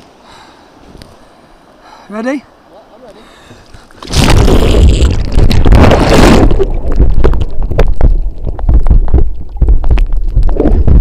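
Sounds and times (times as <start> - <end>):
muffled rumbling water: 0.0 - 11.0
kayak splash: 3.8 - 9.8
dull knocks underwater: 4.0 - 11.0.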